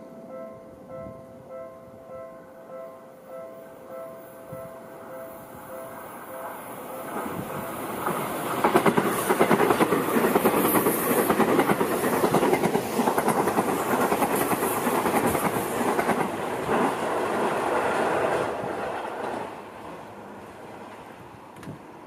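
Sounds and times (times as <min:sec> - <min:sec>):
train wheels clattering over rail joints: 0:07.2 - 0:18.4.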